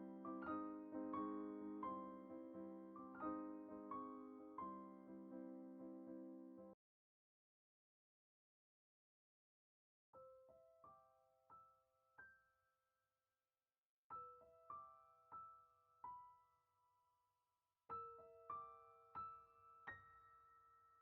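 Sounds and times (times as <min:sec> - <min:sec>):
quiet piano music: 0:00.0 - 0:06.8, 0:10.2 - 0:12.5, 0:14.1 - 0:17.2, 0:17.9 - 0:21.0.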